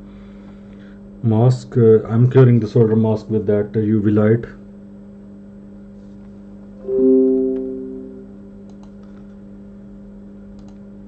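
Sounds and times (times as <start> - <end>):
piano chord: 6.8 - 8.6
low hum: 6.8 - 8.8.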